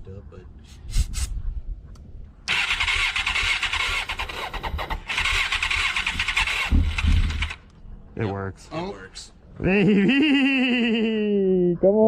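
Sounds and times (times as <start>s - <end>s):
engine cranking and running: 2.5s - 7.6s.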